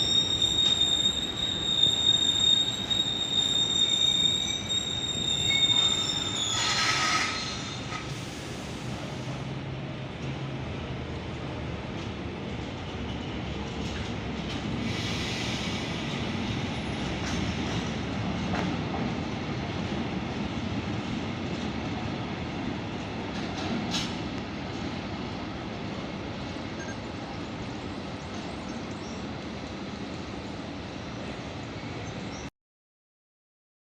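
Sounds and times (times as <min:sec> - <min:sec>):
train wheels rumbling on rails: 0:00.0 - 0:32.4.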